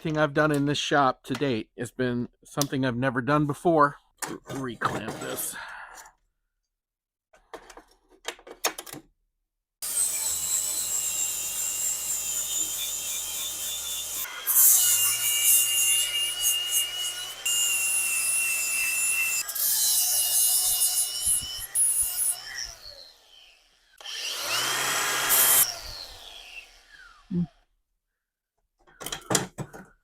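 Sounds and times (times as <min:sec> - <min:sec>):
power grinder grinding steel: 0:09.8 - 0:27.3.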